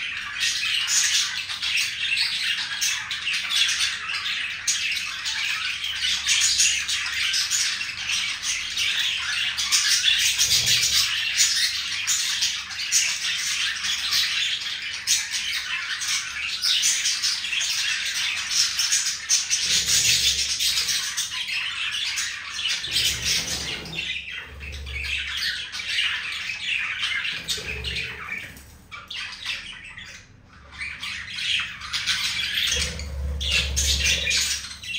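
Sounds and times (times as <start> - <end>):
budgie chattering and warbling: 8.8 - 13.8, 16.8 - 34.9.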